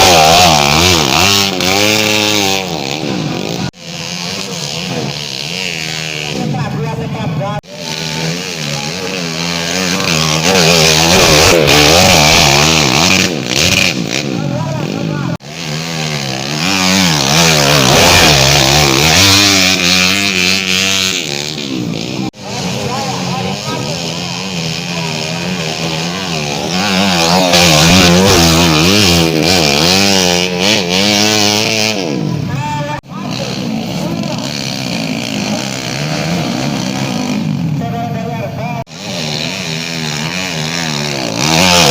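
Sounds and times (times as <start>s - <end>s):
motorcycle engine revving hard: 0.0s - 41.9s.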